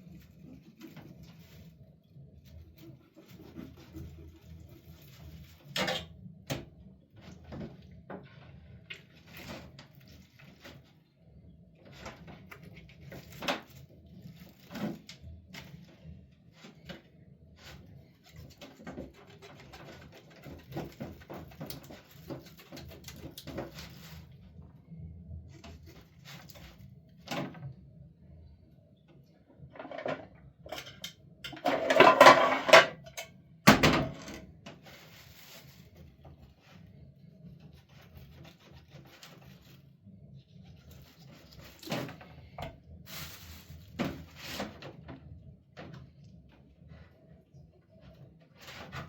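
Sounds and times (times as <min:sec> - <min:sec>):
household items knocking and clattering: 0:29.7 - 0:34.4.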